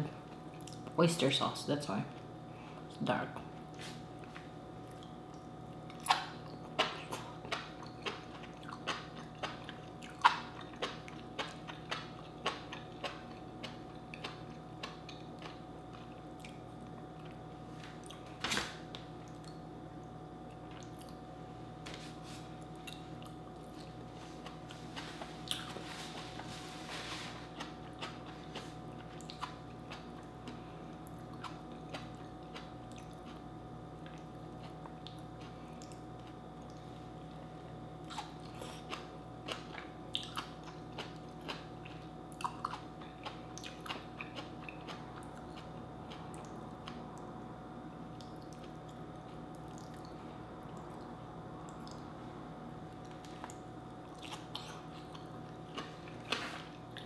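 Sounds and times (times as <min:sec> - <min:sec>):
person chewing wetly: 0:00.3 - 0:00.9, 0:03.5 - 0:18.3, 0:20.4 - 0:21.3, 0:22.5 - 0:47.4, 0:48.1 - 0:52.1, 0:52.9 - 0:57.0.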